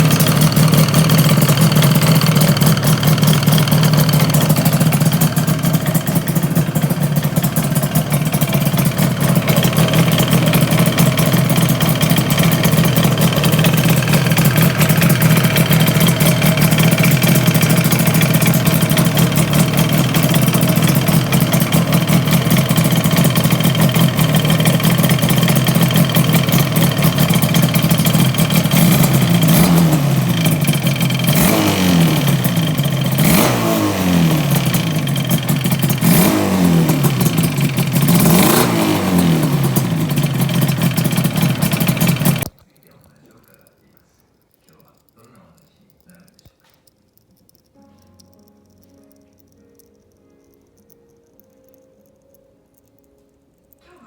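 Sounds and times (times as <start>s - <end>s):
abnormal engine noise: 0.0s - 42.5s
motorcycle engine idling: 0.0s - 42.5s.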